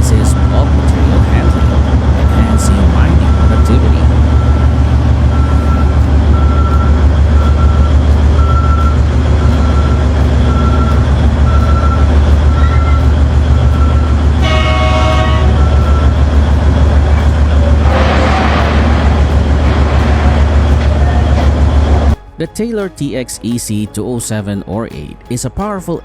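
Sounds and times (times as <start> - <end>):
short beeping: 0.0 - 22.1
heavy machinery droning: 0.0 - 22.2
horn toot: 14.4 - 16.2, 17.1 - 22.2.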